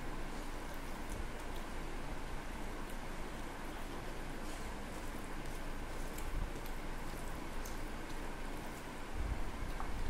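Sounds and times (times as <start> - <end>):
fingers squishing rice: 0.0 - 10.0
person chewing food: 2.7 - 10.0.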